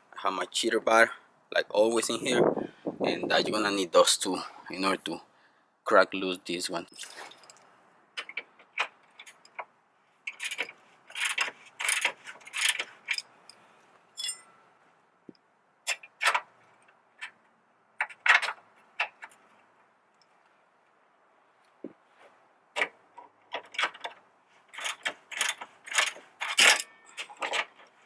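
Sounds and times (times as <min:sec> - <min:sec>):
metallic clinks of hand tools: 0:14.2 - 0:14.6.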